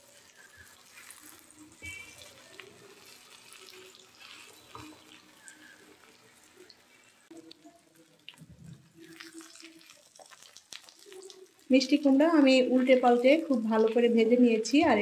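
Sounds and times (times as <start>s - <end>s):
food sizzling in oil: 0.0s - 14.8s
small pops and crackles: 0.3s - 11.7s.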